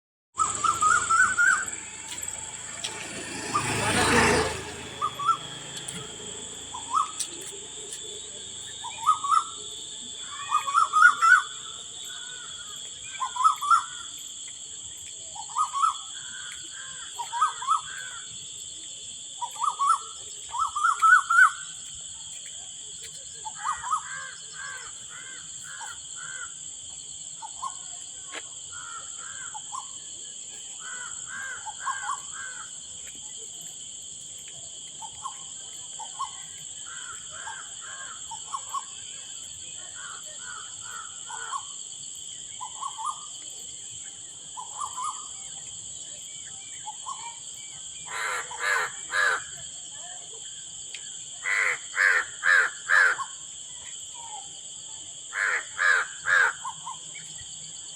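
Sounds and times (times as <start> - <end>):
high-pitched drone: 0.4 - 9.6
birds harsh calls: 0.4 - 14.2, 23.4 - 26.6, 30.8 - 32.8, 48.0 - 49.6, 51.4 - 53.4, 55.3 - 57.3.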